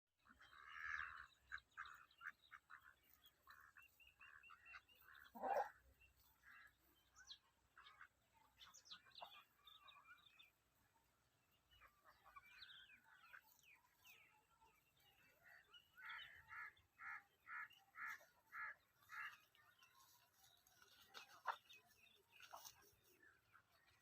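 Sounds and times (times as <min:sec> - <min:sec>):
poultry calling: 0:00.2 - 0:10.4.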